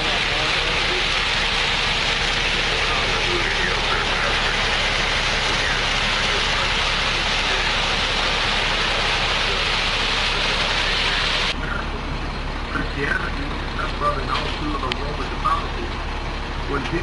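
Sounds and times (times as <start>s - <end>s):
loud rushing hiss: 0.0s - 11.6s
concrete mixer truck engine running: 0.0s - 17.0s.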